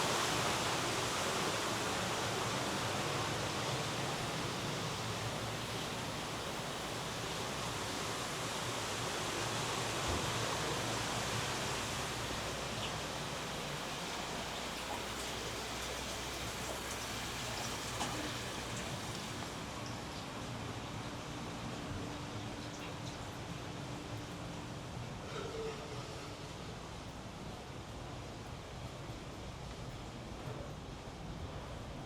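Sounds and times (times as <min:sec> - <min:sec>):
flowing water: 0:00.0 - 0:25.2.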